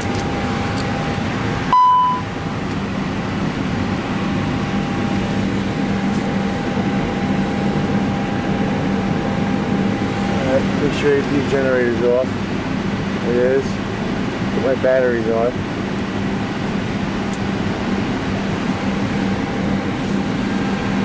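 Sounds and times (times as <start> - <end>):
airport ramp and cockpit noise: 0.0 - 21.0
short electronic beep: 1.7 - 2.3
thin steady high tone: 1.7 - 2.3.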